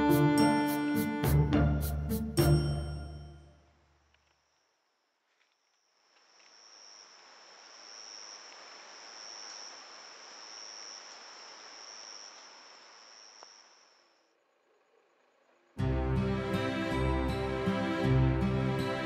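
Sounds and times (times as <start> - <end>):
high-pitched insect trill: 5.6 - 15.6
rain falling on plants: 6.0 - 13.0.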